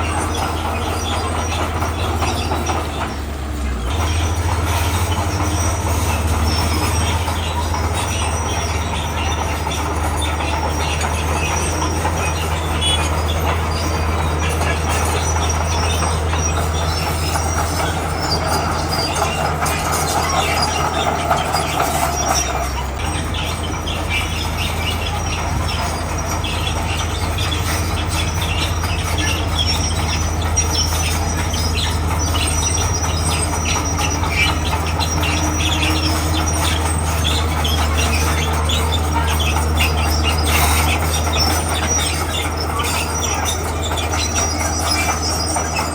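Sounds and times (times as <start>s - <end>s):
bulldozer diesel engine droning: 0.0s - 45.9s
squeal: 0.0s - 45.9s
steel tracks clanking: 0.0s - 45.9s.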